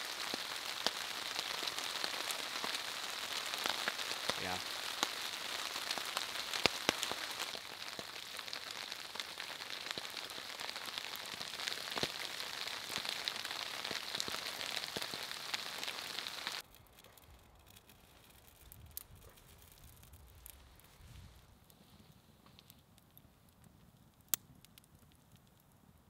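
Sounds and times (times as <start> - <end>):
steady rain hiss: 0.0 - 16.6
raindrops pattering: 0.0 - 20.9.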